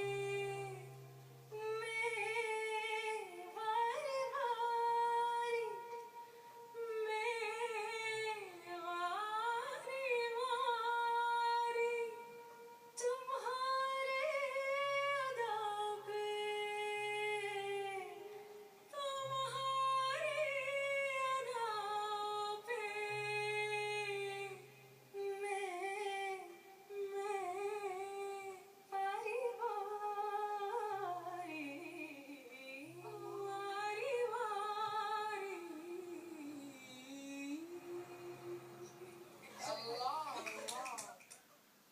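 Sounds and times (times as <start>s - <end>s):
woman singing solo: 0.0s - 39.4s.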